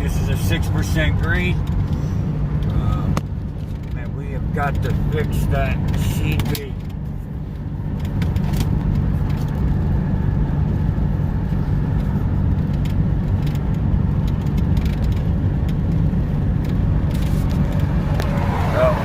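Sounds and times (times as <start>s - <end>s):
low diesel engine drone: 0.0s - 19.0s
road noise: 0.0s - 19.0s.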